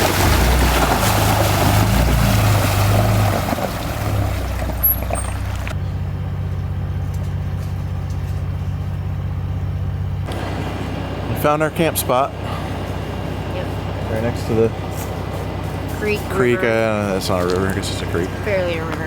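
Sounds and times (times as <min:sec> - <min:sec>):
water rushing and splashing: 0:00.0 - 0:05.8
low engine drone: 0:00.0 - 0:19.0.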